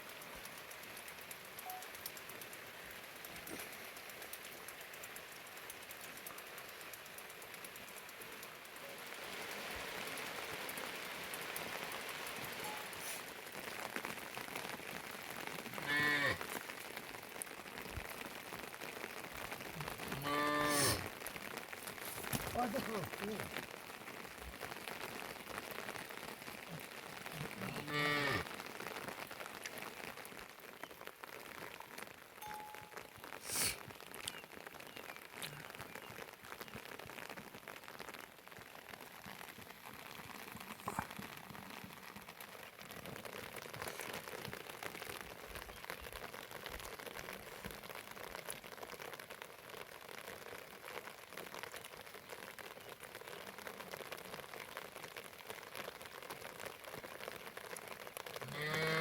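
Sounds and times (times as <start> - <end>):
steady rain patter: 0.0 - 59.0.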